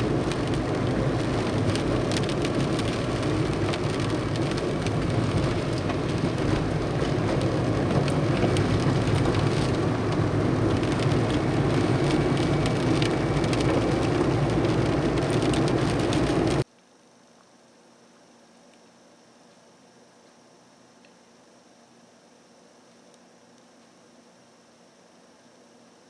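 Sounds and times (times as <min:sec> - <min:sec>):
heavy rain: 0:00.0 - 0:16.6.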